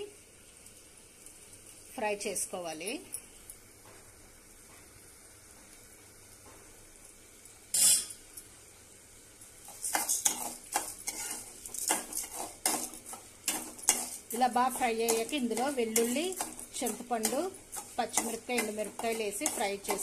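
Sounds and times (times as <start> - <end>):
lentils frying in oil: 0.0 - 20.0
metal utensil scraping a pan: 7.7 - 8.2, 9.7 - 20.0.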